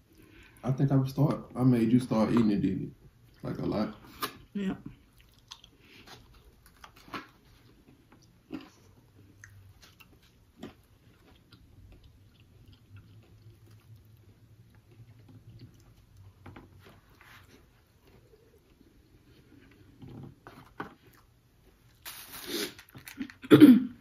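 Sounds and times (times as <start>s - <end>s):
faint low hum: 0.0s - 22.0s
chewing and mouth clicks: 5.1s - 16.4s.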